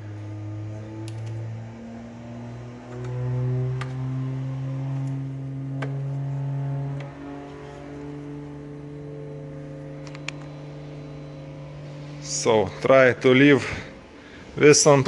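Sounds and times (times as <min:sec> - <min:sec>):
electric cooling fan humming: 0:00.0 - 0:15.0.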